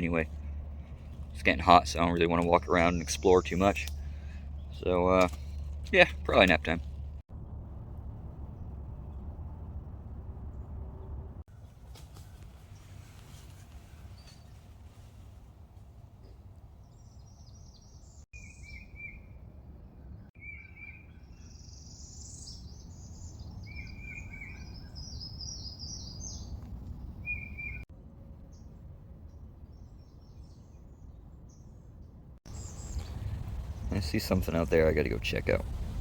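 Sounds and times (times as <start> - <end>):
birds chirping and singing: 0.0 - 6.7, 16.8 - 19.3, 20.1 - 27.8
low background rumble: 0.0 - 20.3, 21.3 - 36.0.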